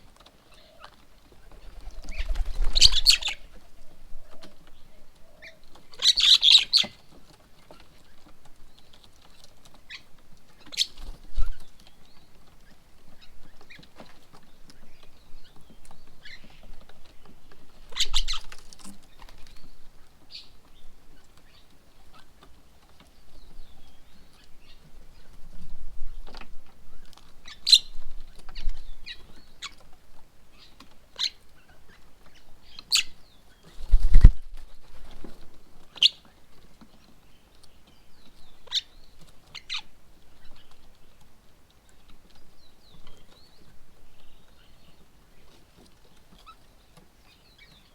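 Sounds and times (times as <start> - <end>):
birds chirping and calling: 0.0 - 47.9
harsh bird calls: 0.4 - 7.0.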